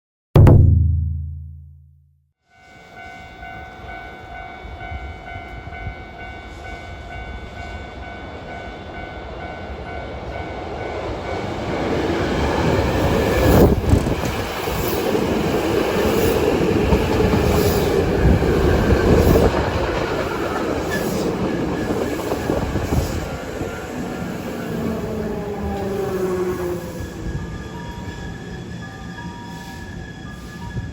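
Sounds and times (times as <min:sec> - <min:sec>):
sharp knock: 0:00.4 - 0:02.1
train wheels rumbling on rails: 0:09.7 - 0:30.9.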